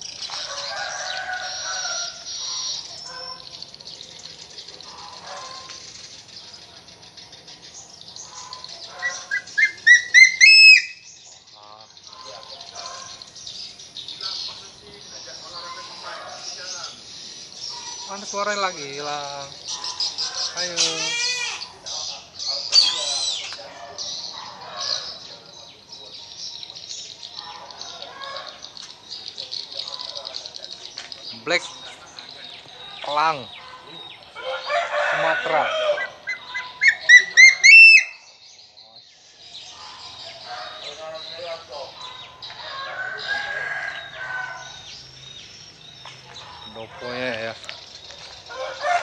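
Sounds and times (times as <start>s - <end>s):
birds chirping: 0.0s - 49.0s
eagle calling shrill notes: 9.0s - 11.1s, 19.8s - 21.8s, 35.7s - 38.4s.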